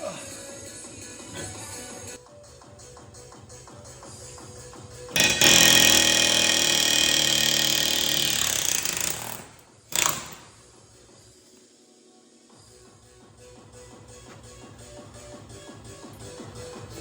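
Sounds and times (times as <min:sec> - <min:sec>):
quiet background music: 0:00.0 - 0:17.0
power tool on steel: 0:05.1 - 0:10.4.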